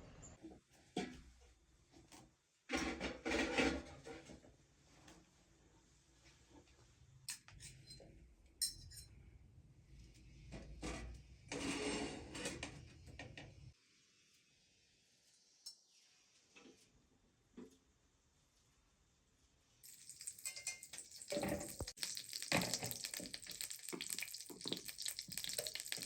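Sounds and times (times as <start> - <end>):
dishes and utensils clinking: 7.3 - 9.2, 19.9 - 23.3
dishes clattering: 19.9 - 23.2.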